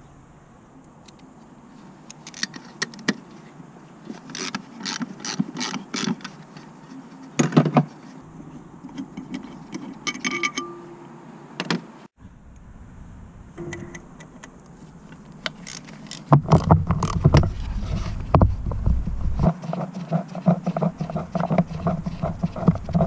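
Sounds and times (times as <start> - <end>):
metal tools clicking and knocking: 8.9 - 10.8
short metallic ring: 10.1 - 11.1.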